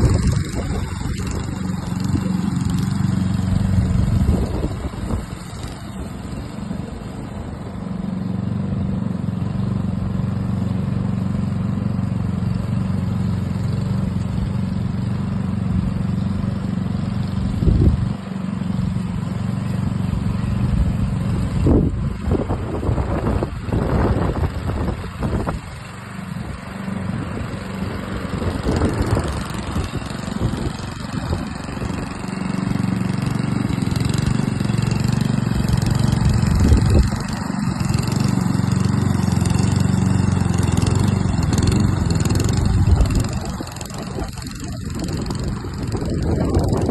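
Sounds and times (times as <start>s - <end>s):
lawn mower running: 0.0s - 46.9s.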